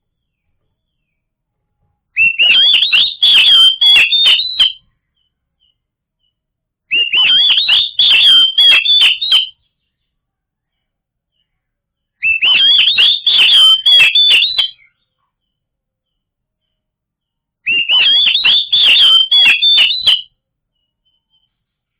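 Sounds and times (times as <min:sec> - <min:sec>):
bird song with whistles and clicks: 0:02.2 - 0:10.1, 0:11.3 - 0:16.8, 0:17.7 - 0:21.7.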